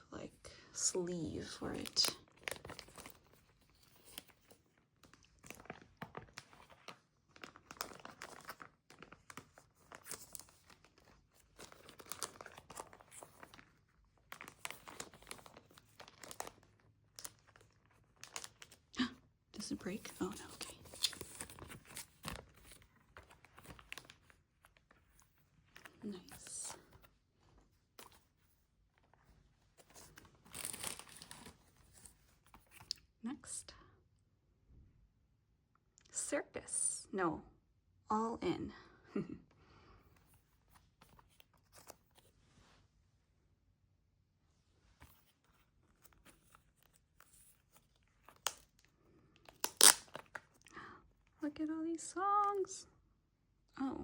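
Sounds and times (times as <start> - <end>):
packaging crinkling and rustling: 1.5 - 19.0, 19.6 - 33.0, 40.2 - 42.4, 45.0 - 50.7.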